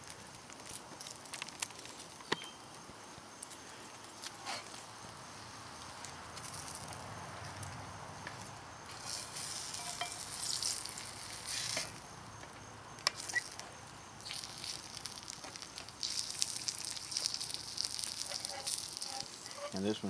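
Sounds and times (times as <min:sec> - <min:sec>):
pie sizzling in butter: 0:08.8 - 0:20.0.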